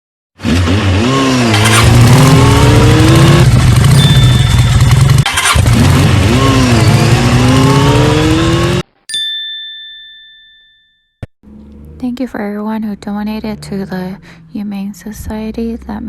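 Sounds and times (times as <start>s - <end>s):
motorcycle engine revving: 0.4s - 8.9s, 11.4s - 14.8s.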